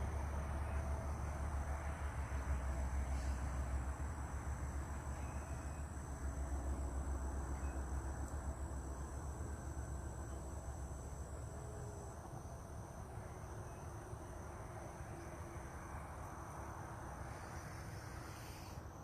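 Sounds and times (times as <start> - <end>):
insects trilling: 8.8 - 19.0.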